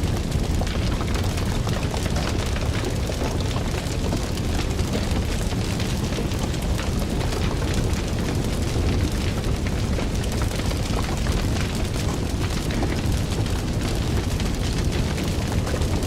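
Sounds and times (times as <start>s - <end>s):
fire crackles and pops: 0.0s - 16.0s
wood fire rumbling: 0.0s - 16.0s.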